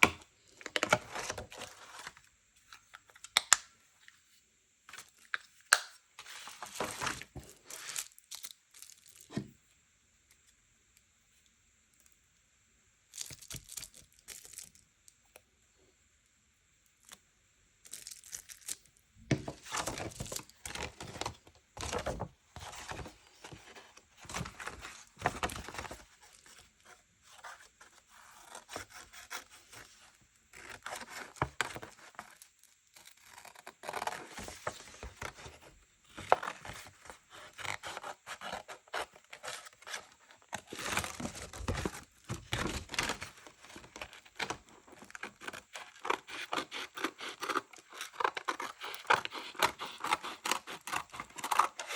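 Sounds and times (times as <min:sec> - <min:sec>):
paper tearing and crinkling: 0:30.6 - 0:35.6, 0:36.2 - 0:51.9.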